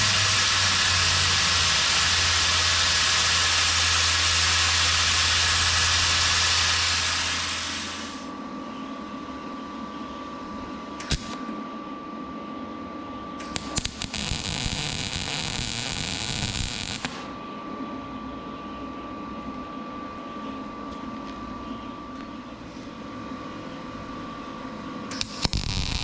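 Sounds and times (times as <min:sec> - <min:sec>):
welding arc hissing: 0:00.0 - 0:08.3, 0:11.0 - 0:11.4, 0:13.4 - 0:17.3, 0:25.1 - 0:26.0
welding machine hum: 0:00.0 - 0:08.3, 0:11.0 - 0:11.4, 0:13.4 - 0:17.3, 0:25.1 - 0:26.0
arc striking clicks: 0:13.4 - 0:17.2, 0:25.1 - 0:26.0.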